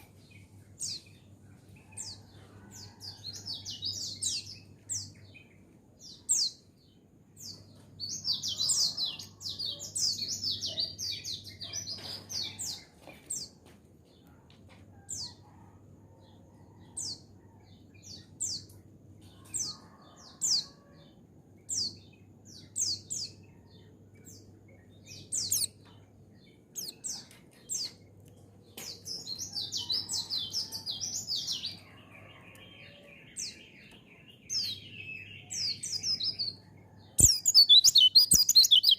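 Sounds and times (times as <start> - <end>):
white-eye birds twittering: 25.2 - 25.7.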